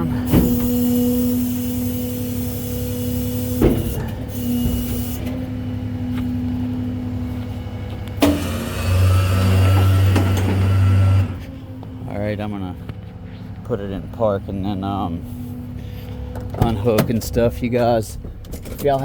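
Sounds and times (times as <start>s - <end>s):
hydraulic hum and whine: 0.0s - 18.7s.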